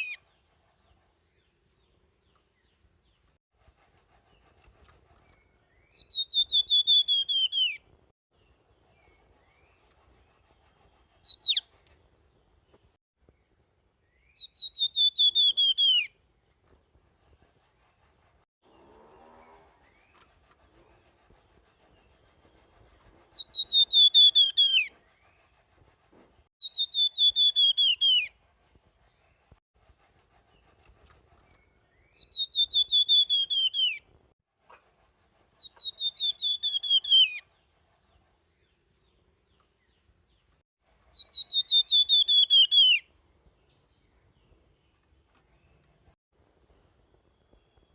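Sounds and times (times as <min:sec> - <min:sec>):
songbird whistling: 0:00.0 - 0:00.2, 0:05.7 - 0:07.8, 0:11.2 - 0:11.7, 0:14.1 - 0:16.2, 0:23.3 - 0:25.3, 0:26.6 - 0:28.4, 0:31.9 - 0:34.0, 0:35.6 - 0:37.5, 0:41.1 - 0:43.1.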